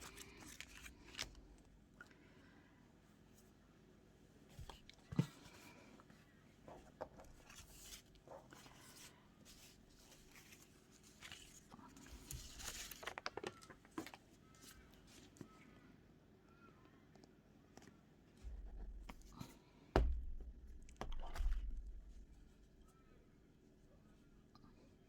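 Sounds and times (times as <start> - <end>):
paper rustling: 0.0 - 1.6, 7.0 - 15.5.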